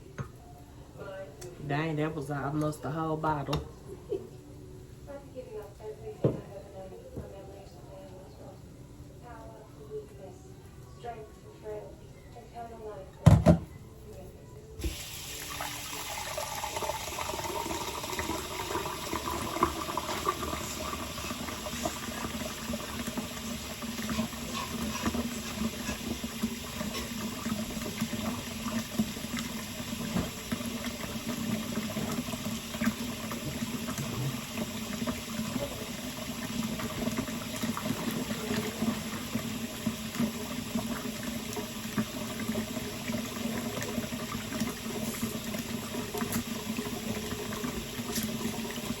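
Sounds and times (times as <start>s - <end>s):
tap running into sink: 14.8s - 15.7s, 16.9s - 35.2s.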